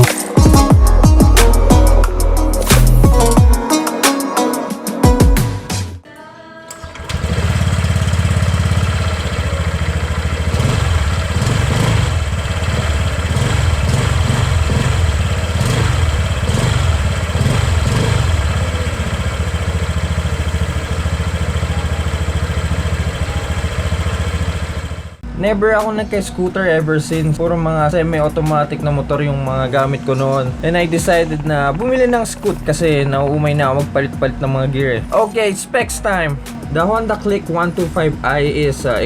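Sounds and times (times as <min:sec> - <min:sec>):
scooter engine idling: 0:06.8 - 0:25.2.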